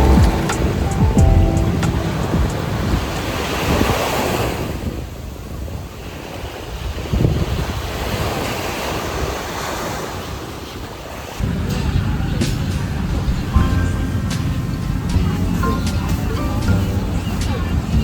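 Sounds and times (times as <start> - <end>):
wind buffeting microphone: 0.0 - 10.8
waves washing onto beach: 0.0 - 18.0.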